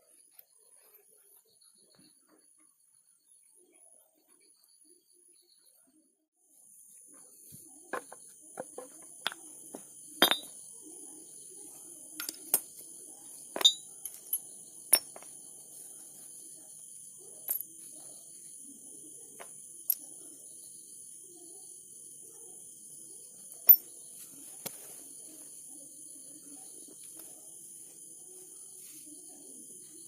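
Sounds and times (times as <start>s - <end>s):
metal tools clinking: 10.2s - 10.6s, 13.6s - 15.3s.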